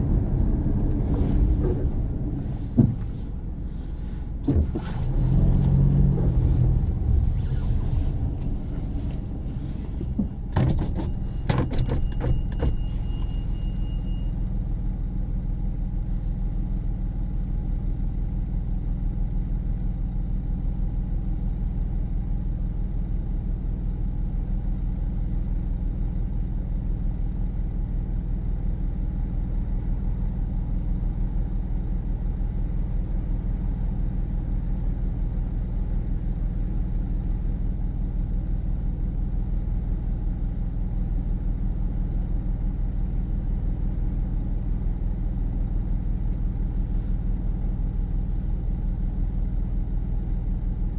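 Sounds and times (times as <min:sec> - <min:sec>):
car cabin rumble: 0:00.0 - 0:24.0, 0:34.5 - 0:50.9
knocks and clatters: 0:09.9 - 0:12.8.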